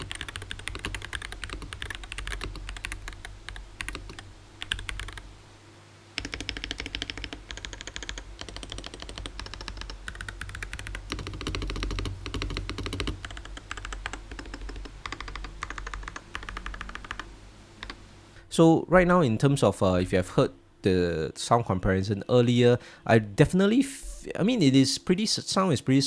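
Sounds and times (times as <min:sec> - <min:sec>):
typing on mechanical keyboard: 0:00.0 - 0:05.2, 0:06.2 - 0:18.0.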